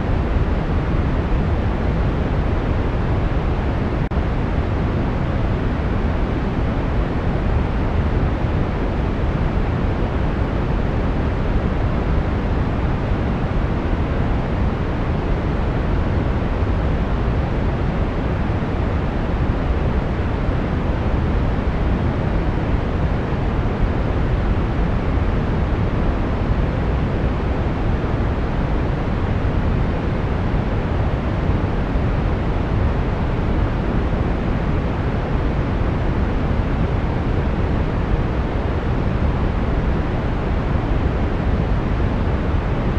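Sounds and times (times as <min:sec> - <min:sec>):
brown noise hiss: 0:00.0 - 0:42.9.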